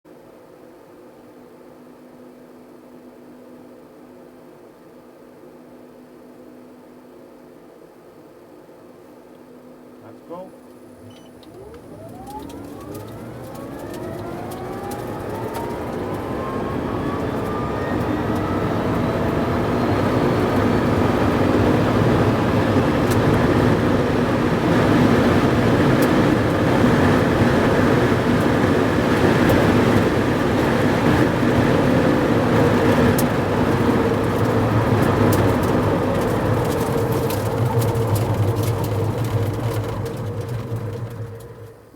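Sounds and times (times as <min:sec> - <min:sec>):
electric drivetrain whine: 0:10.6 - 0:41.9.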